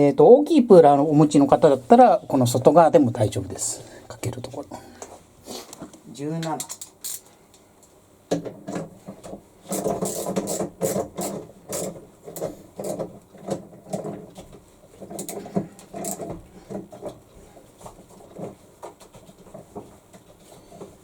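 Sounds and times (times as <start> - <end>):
wrench cranking with metallic clicks: 6.6 - 7.3.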